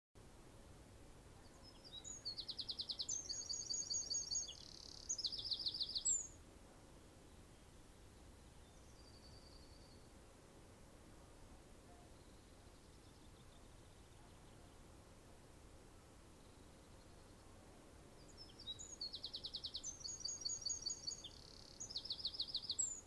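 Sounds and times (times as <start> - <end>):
songbird singing rapid trills: 1.2 - 6.4, 7.2 - 10.2, 11.8 - 14.9, 16.3 - 23.0.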